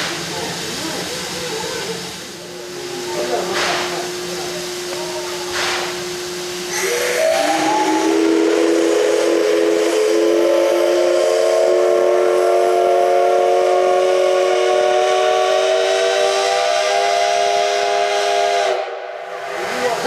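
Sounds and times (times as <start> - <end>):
faint hiss of steam: 0.0 - 20.0
steam whistle chord: 6.6 - 19.3.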